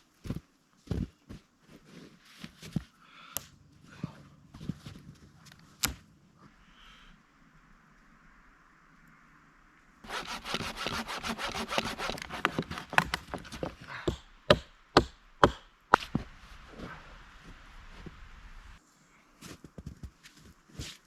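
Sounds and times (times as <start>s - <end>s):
hand saw cutting wood: 10.1s - 16.1s.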